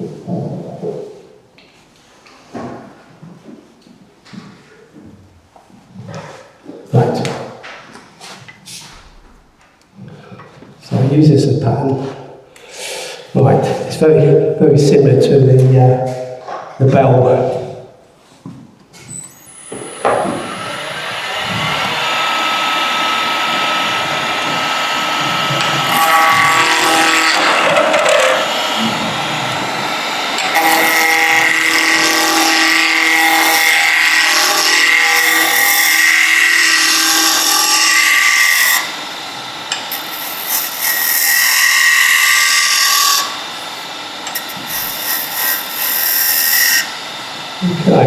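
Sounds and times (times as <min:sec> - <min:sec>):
tool cutting wood hissing: 0:12.6 - 0:13.4, 0:19.0 - 0:48.0
wood lathe whine: 0:18.9 - 0:48.0.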